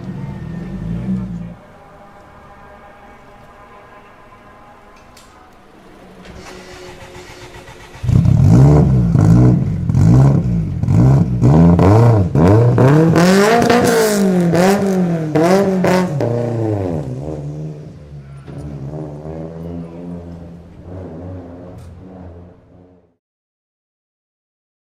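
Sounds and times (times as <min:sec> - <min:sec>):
car engine revving hard: 0:06.3 - 0:23.1.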